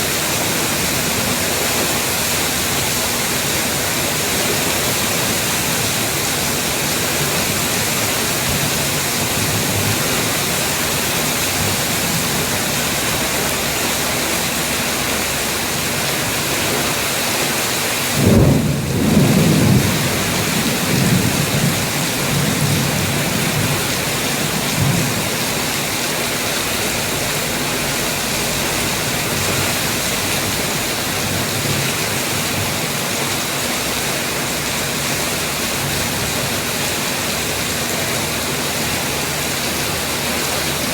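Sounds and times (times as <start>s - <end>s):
heavy rain: 0.0s - 40.9s
thunder rumbling: 0.0s - 40.9s.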